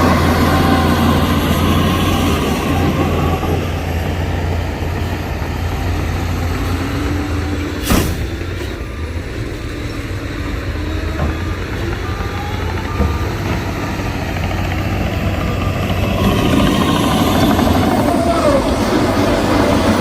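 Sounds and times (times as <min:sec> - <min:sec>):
diesel machinery rumbling: 0:00.0 - 0:20.0
short sharp air hiss: 0:07.8 - 0:08.3.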